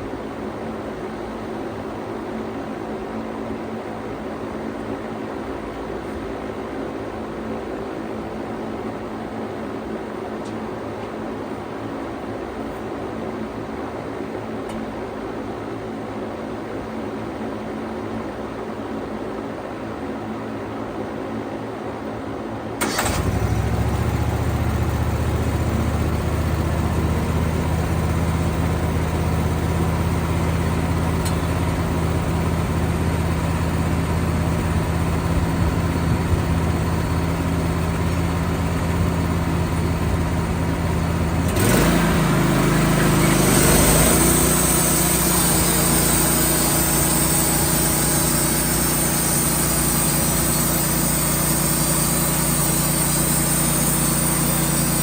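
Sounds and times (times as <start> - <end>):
sawmill engine running: 22.8 - 55.0.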